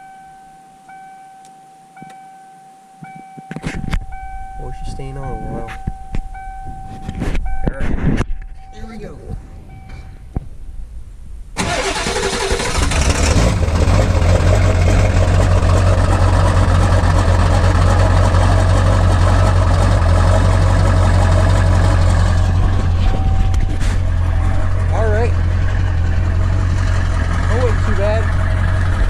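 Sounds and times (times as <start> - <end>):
diesel engine cranking: 11.6 - 29.0
diesel engine idling: 11.6 - 29.0.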